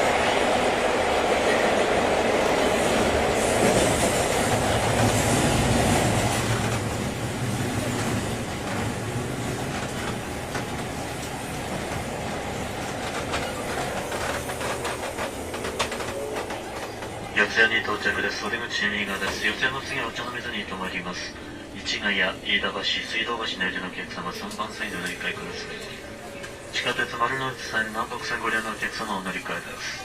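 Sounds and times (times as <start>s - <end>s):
train rolling noise: 0.0s - 30.0s
wheels clacking over rail joints: 5.9s - 17.3s.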